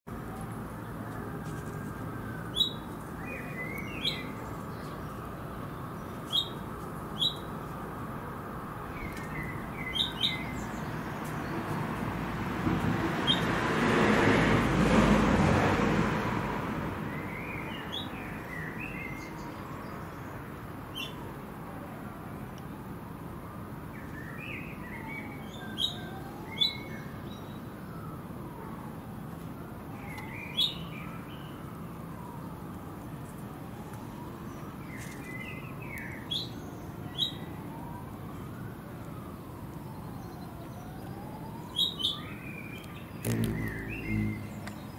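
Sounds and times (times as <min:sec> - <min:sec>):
small birds chirping: 0:02.5 - 0:07.6, 0:08.9 - 0:11.8, 0:39.8 - 0:44.9.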